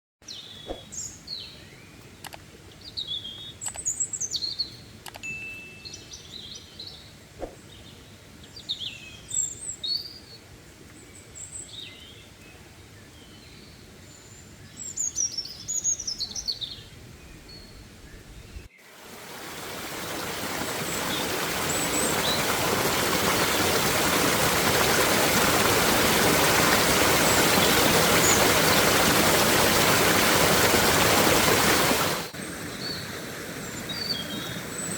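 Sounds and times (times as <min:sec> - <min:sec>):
songbirds chirping and calling: 0:00.2 - 0:05.0, 0:05.8 - 0:18.9
flowing stream rushing: 0:18.8 - 0:34.9.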